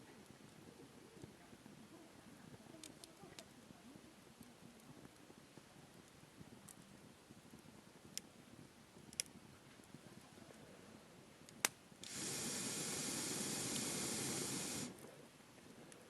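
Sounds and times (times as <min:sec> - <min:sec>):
campfire crackling and popping: 0:00.1 - 0:15.7
loud rushing hiss: 0:12.0 - 0:15.0.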